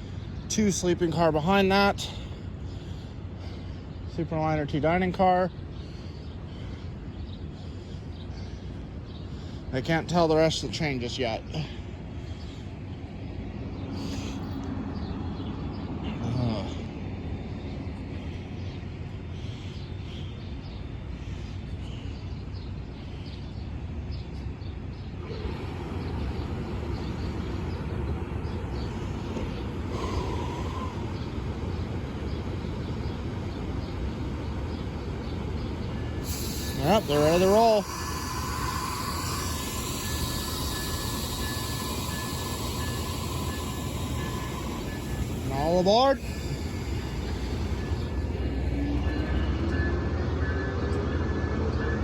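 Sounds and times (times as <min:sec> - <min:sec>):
small birds chirping: 0:00.0 - 0:50.5
idling diesel locomotives rumble: 0:00.0 - 0:52.0
faint steady whine: 0:25.0 - 0:51.8
broad wash of noise: 0:25.2 - 0:50.1.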